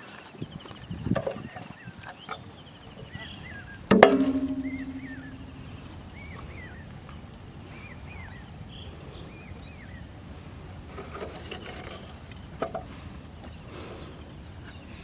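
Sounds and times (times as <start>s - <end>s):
chirping calls: 0.4s - 6.8s
sharp knock with ringing tone: 3.9s - 5.7s.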